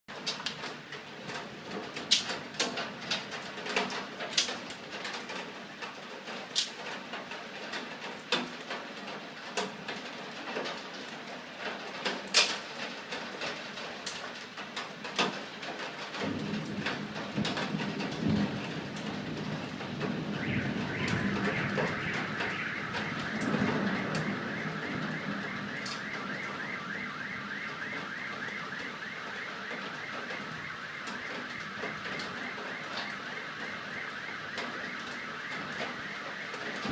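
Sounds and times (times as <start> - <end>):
rolling thunder: 16.1 - 36.9
car alarm: 20.0 - 36.9.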